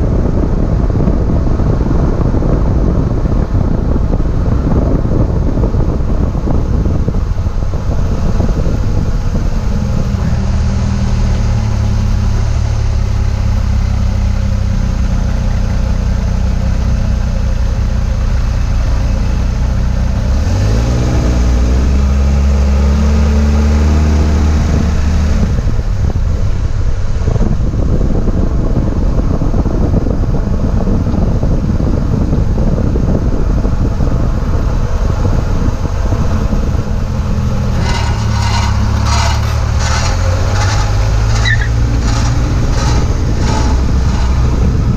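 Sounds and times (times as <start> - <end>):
car engine hum: 0.0 - 44.9
road and tyre noise: 0.0 - 44.9
rapid grinding clicks: 37.1 - 44.9.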